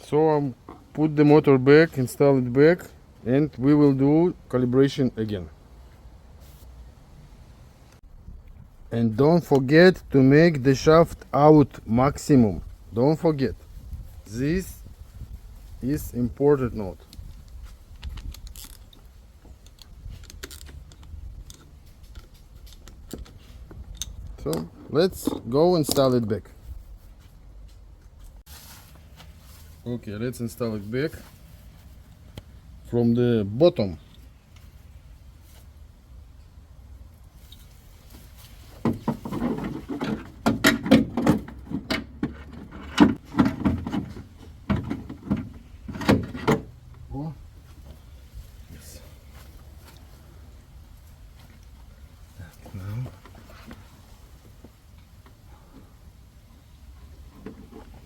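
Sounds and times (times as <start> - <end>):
metal parts clicking and tapping: 18.0 - 26.3.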